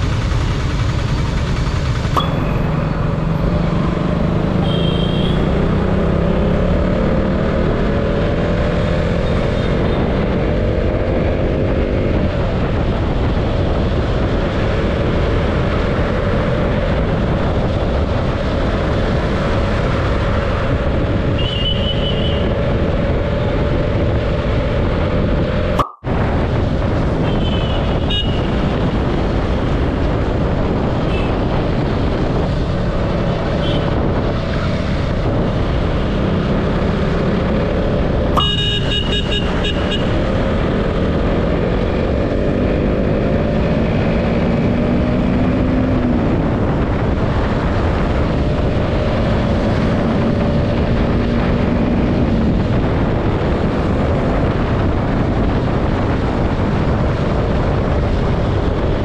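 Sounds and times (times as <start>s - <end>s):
motorcycle engine accelerating: 0.0s - 59.0s
road and wind noise: 0.0s - 59.0s
vehicle horn beeping: 4.6s - 5.7s, 21.4s - 22.5s, 27.2s - 28.6s, 38.4s - 40.2s.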